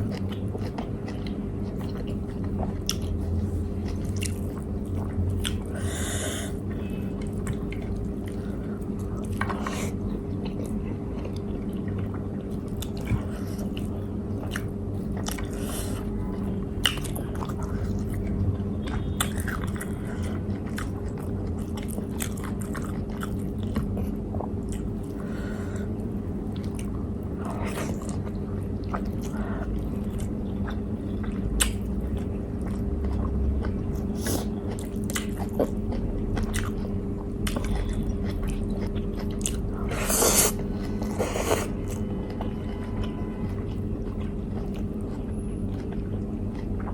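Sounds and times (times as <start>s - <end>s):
low hum: 0.0s - 46.9s
person chewing food: 0.0s - 46.9s
wet mouth sounds: 27.5s - 42.5s.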